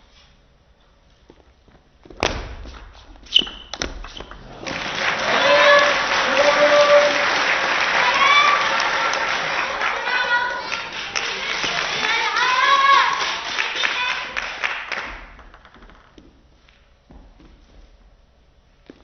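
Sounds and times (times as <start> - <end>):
spectators clapping and cheering: 3.9 - 16.1
people shouting: 4.6 - 14.3.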